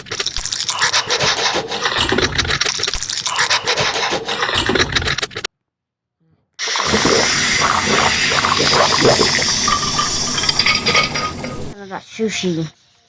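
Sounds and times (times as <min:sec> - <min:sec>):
chewing and wet mouth noises: 0:00.1 - 0:04.8, 0:06.9 - 0:11.8.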